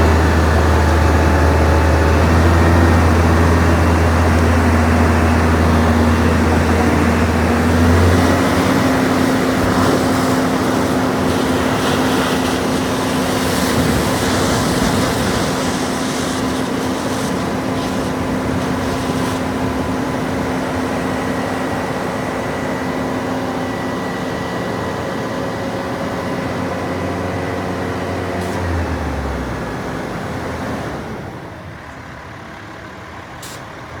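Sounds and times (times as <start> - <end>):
truck diesel engine running: 0.0 - 34.0.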